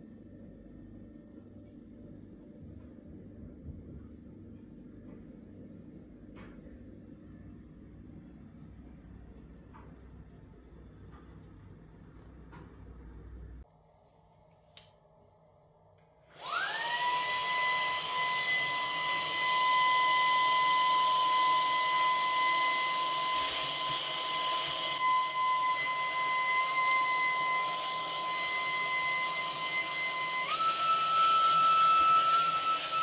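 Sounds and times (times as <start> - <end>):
electric motor fan whining: 16.3 - 33.0.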